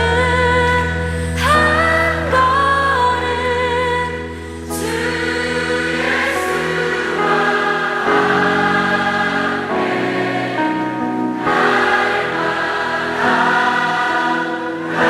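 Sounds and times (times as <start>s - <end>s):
choir singing a hymn: 4.6s - 15.0s.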